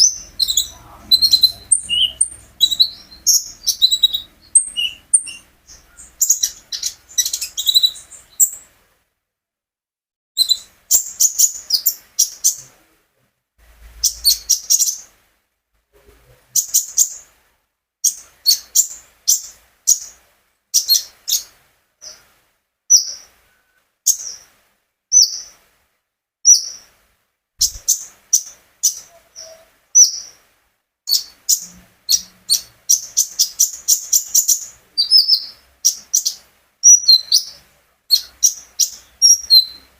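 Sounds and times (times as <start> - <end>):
songbird chirps and trills: 0.0 - 8.8, 10.4 - 13.0, 13.8 - 15.2, 16.0 - 17.4, 18.0 - 25.7, 26.5 - 27.0, 27.6 - 39.9.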